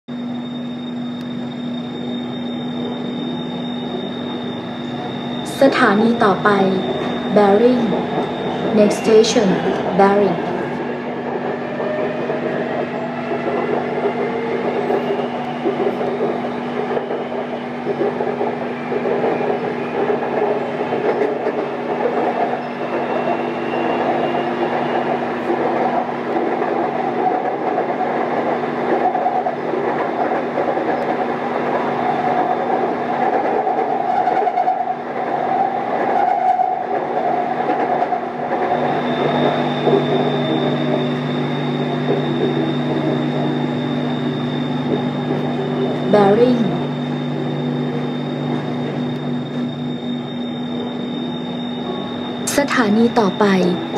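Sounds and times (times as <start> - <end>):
high steady tone: 0.1 - 11.1, 38.7 - 53.9
train cabin rumble and hum: 0.1 - 53.9.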